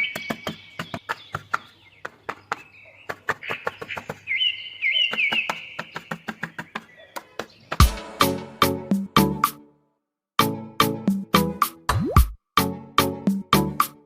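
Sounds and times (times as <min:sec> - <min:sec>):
small birds chirping: 0:00.0 - 0:07.9
repeated sweeping bird notes: 0:00.0 - 0:09.6.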